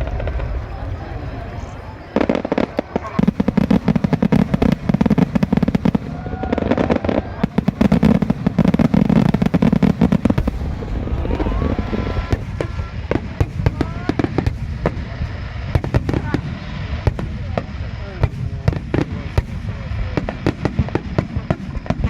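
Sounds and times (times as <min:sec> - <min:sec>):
low rumble: 0:00.0 - 0:03.5, 0:09.4 - 0:15.8
firework whistles: 0:00.0 - 0:22.0
fireworks bangs and crackling: 0:00.0 - 0:22.0.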